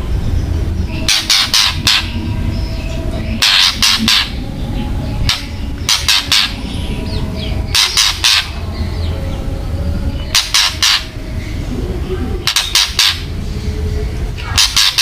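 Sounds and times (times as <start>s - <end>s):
steady low hum: 0.0s - 15.0s
bird giving harsh rattling calls: 1.0s - 4.4s, 5.2s - 6.6s, 7.7s - 8.6s, 10.3s - 11.1s, 12.4s - 13.4s, 14.4s - 15.0s.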